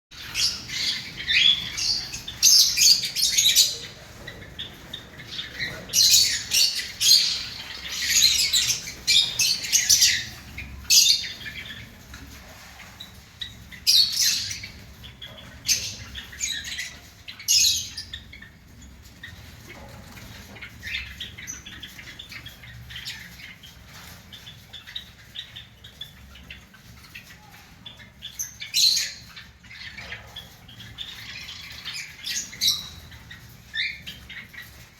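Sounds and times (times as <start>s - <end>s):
sparrows chirping: 0.1s - 34.9s.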